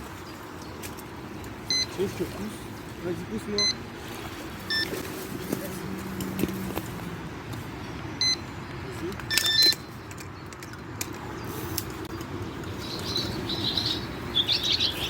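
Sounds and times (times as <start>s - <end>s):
birds chirping: 0.0s - 15.0s
bite alarm beeps: 1.7s - 2.0s, 3.6s - 3.8s, 4.7s - 4.9s, 8.2s - 8.4s, 9.3s - 9.8s.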